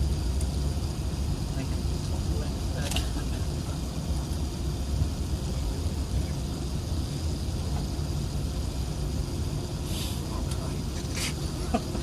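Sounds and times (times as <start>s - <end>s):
aircraft cabin engine rumble: 0.0s - 12.0s
thin steady hum tones: 0.0s - 12.0s
faint hiss: 9.8s - 11.4s.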